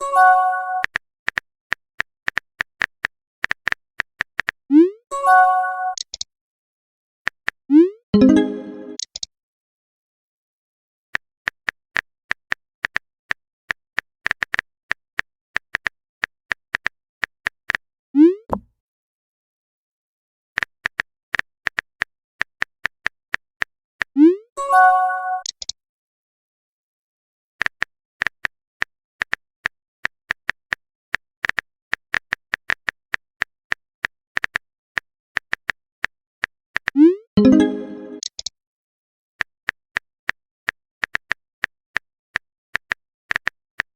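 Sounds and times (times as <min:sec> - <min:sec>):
phone keyboard typing clicks: 0:05.9 - 0:06.3, 0:08.2 - 0:09.3, 0:25.4 - 0:25.8, 0:36.8 - 0:38.5
phone keyboard clicks: 0:09.0 - 0:09.3, 0:25.4 - 0:25.8, 0:38.2 - 0:38.5.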